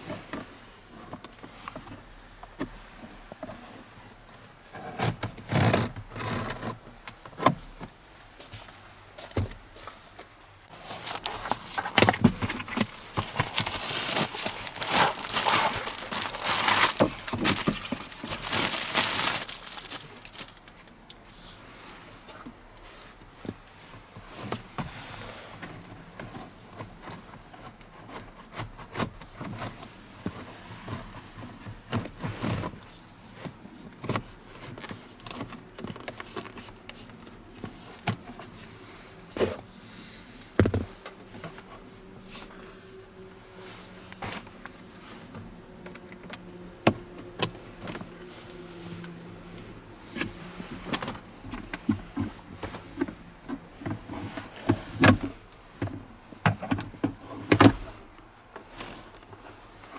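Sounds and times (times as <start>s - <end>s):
hands handling plastic trim: 10.7s - 21.2s.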